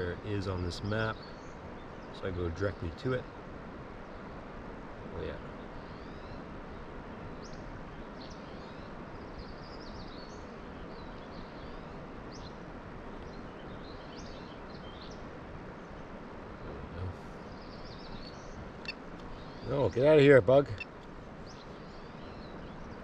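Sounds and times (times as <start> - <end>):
open-air background hiss: 0.0 - 23.0
small birds chirping: 0.0 - 23.0.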